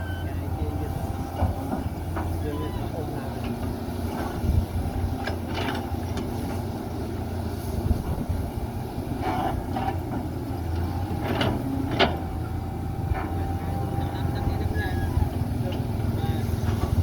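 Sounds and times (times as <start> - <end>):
diesel machinery rumbling: 0.0 - 17.0.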